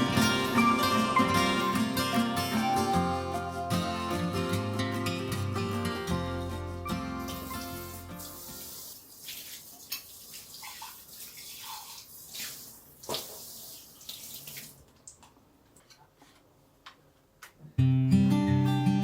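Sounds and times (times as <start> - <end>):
tap water running into sink: 7.3 - 14.9.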